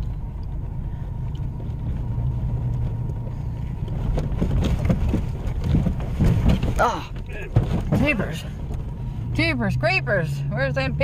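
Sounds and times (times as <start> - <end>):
truck cabin road and engine rumble: 0.0 - 11.0.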